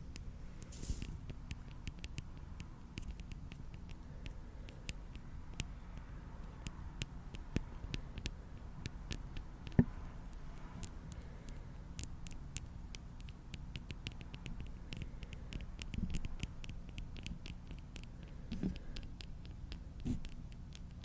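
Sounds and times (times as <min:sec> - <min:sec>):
small clicks and crackles: 0:00.0 - 0:21.0
soft thumps: 0:18.5 - 0:18.8.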